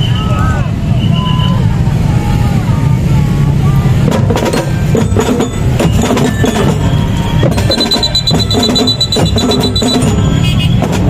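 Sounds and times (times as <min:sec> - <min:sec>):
marching drum band: 0:03.0 - 0:11.0
high steady tone: 0:04.4 - 0:10.6.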